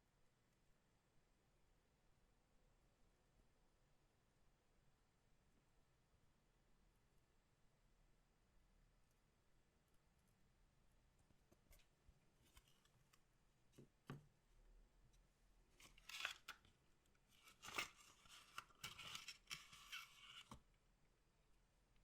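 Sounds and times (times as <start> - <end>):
plastic wrapper tearing: 15.8 - 16.6.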